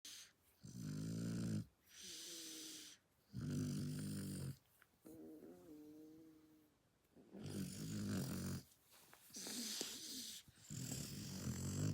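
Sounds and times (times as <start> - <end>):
dog snoring: 0.1 - 4.6, 7.3 - 8.7, 9.4 - 11.9.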